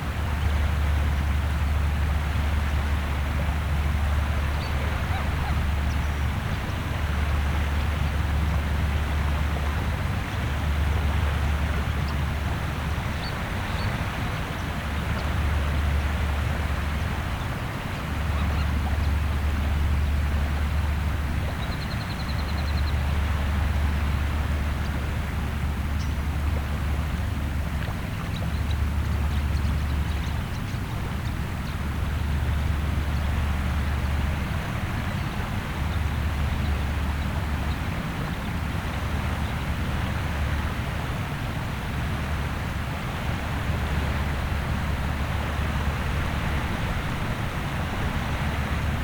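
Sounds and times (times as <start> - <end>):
wind rumble on microphone: 0.0 - 49.0
shorebird calls: 4.1 - 8.2, 17.0 - 26.8
waves washing on shore: 29.9 - 49.0.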